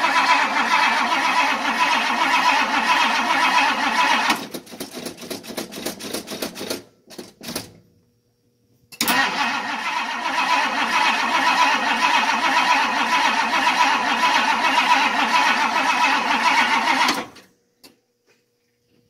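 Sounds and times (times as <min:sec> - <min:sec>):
car engine cranking: 0:00.0 - 0:04.4, 0:09.0 - 0:17.4.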